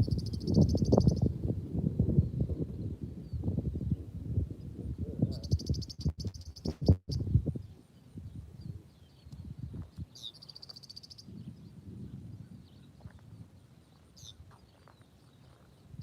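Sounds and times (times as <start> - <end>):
bird trilling and chirping: 0.0 - 1.3, 5.3 - 7.3, 8.6 - 11.7, 14.2 - 15.7
gusty low rumbling: 0.9 - 10.1, 11.2 - 14.0.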